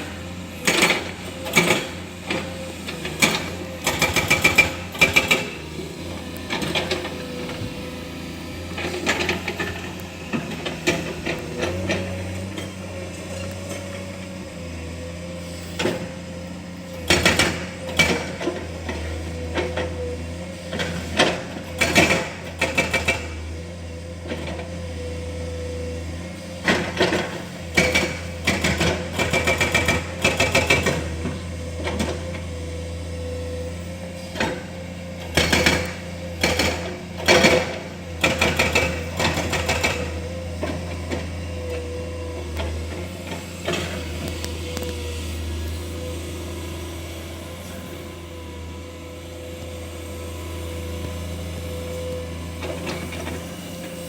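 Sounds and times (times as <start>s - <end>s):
hydraulic whine: 0.0s - 24.6s, 25.6s - 54.0s
excavator diesel engine: 0.0s - 54.0s.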